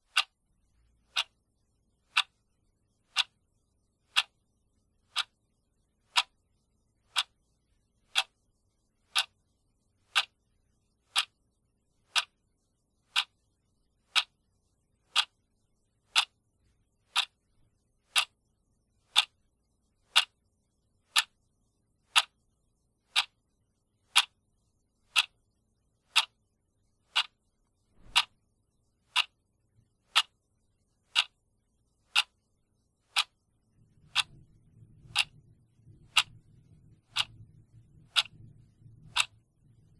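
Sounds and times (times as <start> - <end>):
clock ticking: 0.0 - 0.4, 1.0 - 1.4, 2.0 - 3.4, 4.0 - 4.4, 5.0 - 5.4, 6.0 - 6.4, 7.0 - 7.4, 8.0 - 8.4, 9.0 - 10.4, 11.1 - 11.4, 12.0 - 12.4, 13.0 - 13.4, 14.0 - 14.4, 15.0 - 15.4, 16.0 - 16.4, 17.0 - 17.5, 18.1 - 18.4, 19.1 - 19.4, 20.1 - 20.4, 21.1 - 21.4, 22.0 - 22.4, 23.1 - 24.4, 25.0 - 28.4, 29.1 - 29.4, 30.0 - 30.5, 31.1 - 31.4, 32.1 - 32.5, 33.1 - 39.9.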